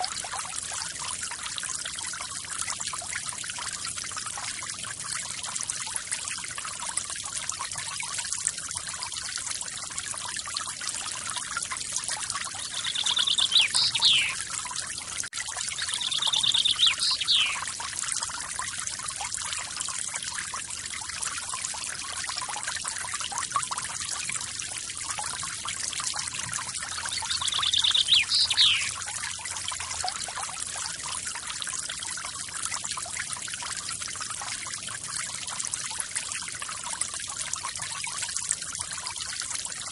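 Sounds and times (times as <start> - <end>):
bird trilling call: 12.6 - 14.4, 15.8 - 17.6, 27.0 - 29.0.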